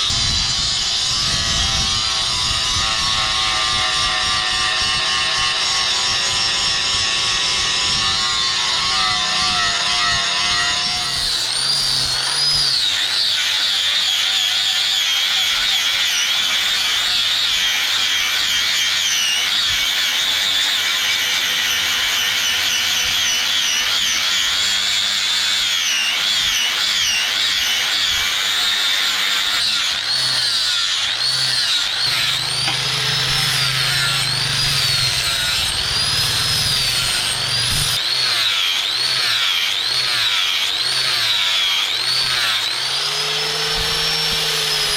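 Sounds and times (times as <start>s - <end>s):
power grinder grinding steel: 0.0s - 44.9s.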